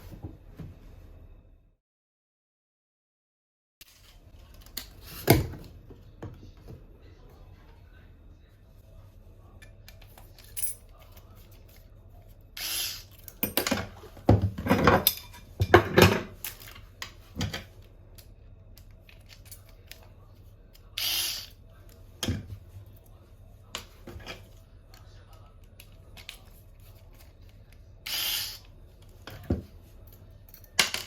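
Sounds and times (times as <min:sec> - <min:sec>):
tools and metal fittings clinking: 0:10.0 - 0:11.2.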